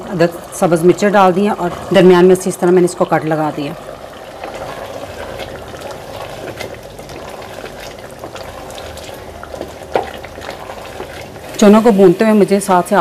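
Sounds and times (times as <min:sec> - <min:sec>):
bubbling sizzle with pops: 0:00.0 - 0:13.0
wooden spoon stirring: 0:03.4 - 0:13.0.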